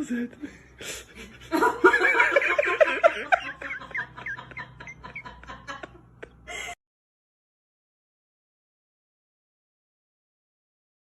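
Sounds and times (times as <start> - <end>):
person giggling: 1.1 - 6.8.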